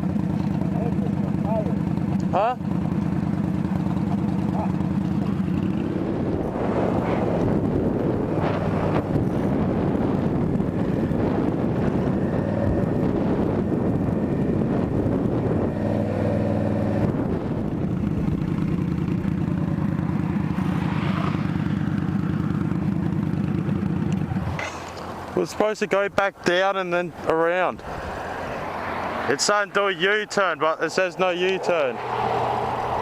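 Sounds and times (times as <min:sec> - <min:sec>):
motorcycle engine running: 0:00.0 - 0:25.4
road and wind noise: 0:00.0 - 0:33.0.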